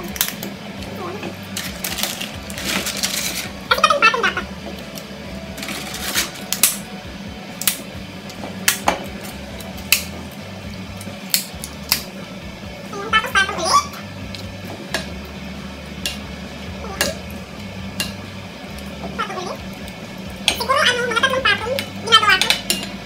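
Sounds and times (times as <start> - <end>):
steady low hum: 0.0 - 23.0
spoon tapping metal pot: 21.8 - 23.0.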